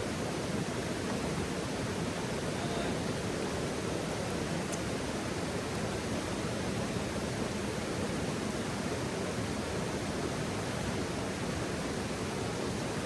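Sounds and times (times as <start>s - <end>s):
flowing river water: 0.0s - 13.0s.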